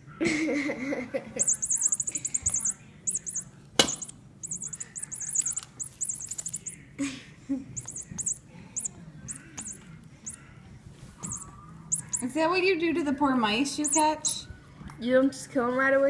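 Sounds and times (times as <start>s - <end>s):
small bird chirping: 1.4s - 6.9s, 7.7s - 10.5s, 11.2s - 12.4s, 13.7s - 14.4s.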